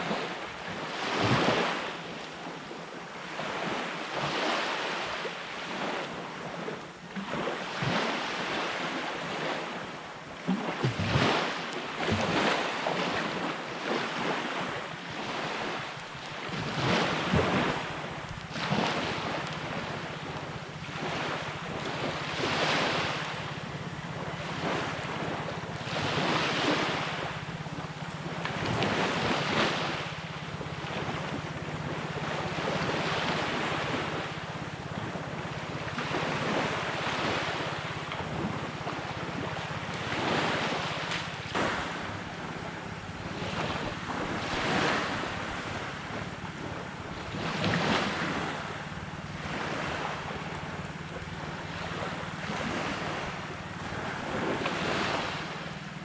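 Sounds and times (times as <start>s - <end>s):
sea waves breaking: 0.0s - 56.0s
wind buffeting microphone: 10.8s - 56.0s
steady low hum: 14.6s - 56.0s.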